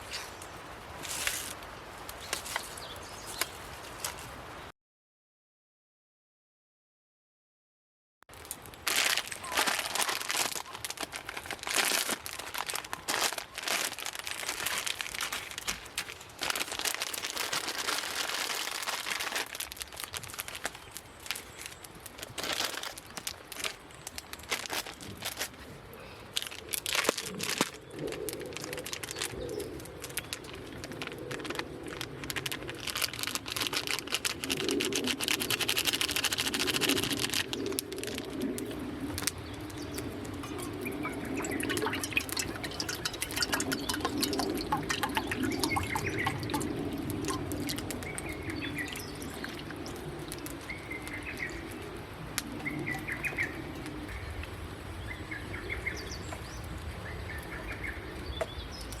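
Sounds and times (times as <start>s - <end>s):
small birds chirping: 2.2s - 3.6s, 39.2s - 54.4s.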